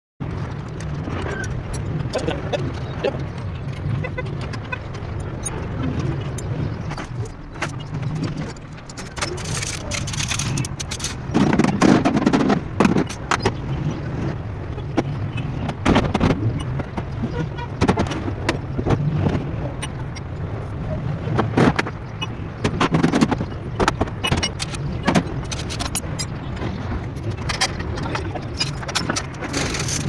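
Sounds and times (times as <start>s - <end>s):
low rumble of motor vehicle: 0.2s - 30.0s
clicks and knocks: 0.6s - 13.7s, 21.4s - 30.0s.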